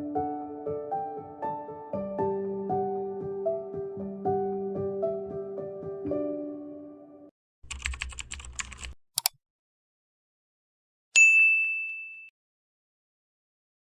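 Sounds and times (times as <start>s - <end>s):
music: 0.0s - 7.3s
typing clicks: 7.7s - 9.4s
bell-like ding: 11.2s - 12.3s.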